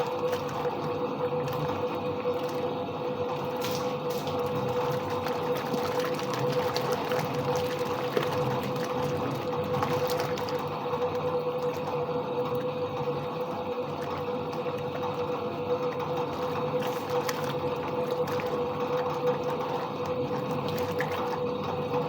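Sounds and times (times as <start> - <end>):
washing machine motor hum: 0.0 - 22.0
water churning in tub: 0.0 - 22.0.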